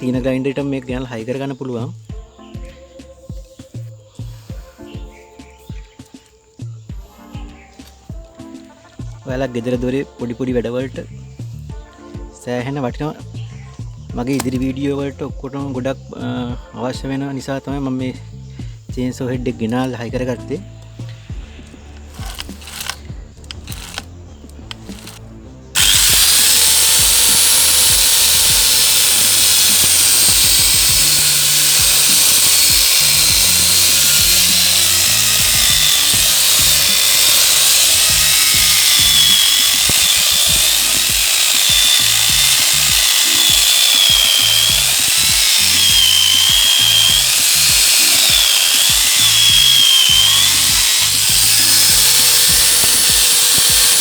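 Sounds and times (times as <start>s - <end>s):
angle grinder cutting wood: 0.0s - 0.3s, 22.0s - 25.2s, 25.8s - 54.0s.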